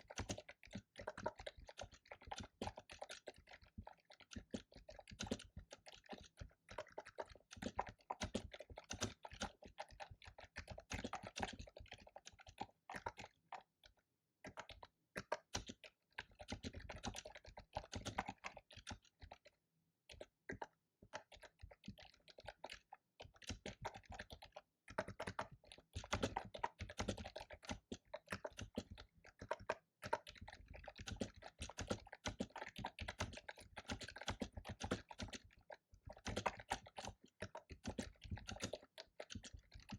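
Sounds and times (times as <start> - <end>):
fast keyboard typing: 0.1 - 0.5, 30.4 - 35.5.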